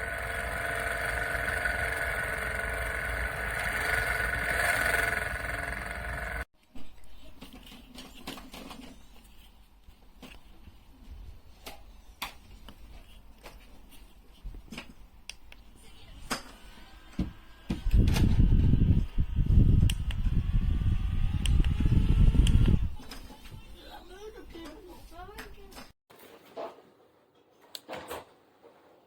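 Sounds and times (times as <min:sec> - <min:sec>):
fan motor whine: 0:00.0 - 0:06.4, 0:16.8 - 0:23.0
airflow rumbling on microphone: 0:17.9 - 0:23.0.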